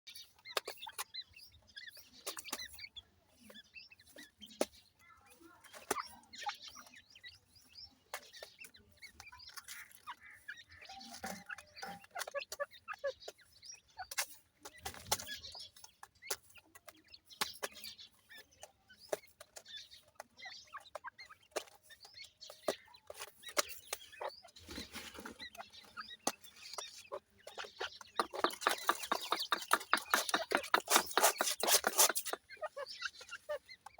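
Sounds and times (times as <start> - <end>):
pheasant chicks peeping: 0.1 - 33.9
sharp clicks and taps: 27.6 - 32.5.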